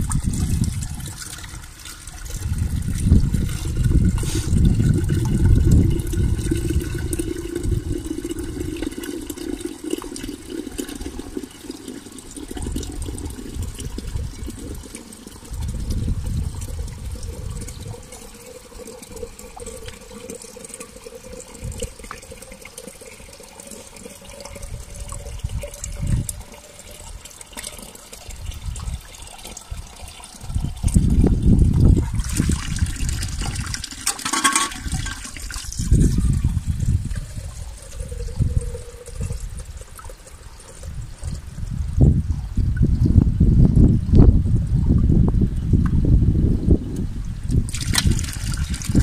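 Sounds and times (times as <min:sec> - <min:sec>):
water filling a container: 0:00.0 - 0:45.1, 0:46.9 - 0:49.0
low rumbling bumps: 0:02.3 - 0:07.9.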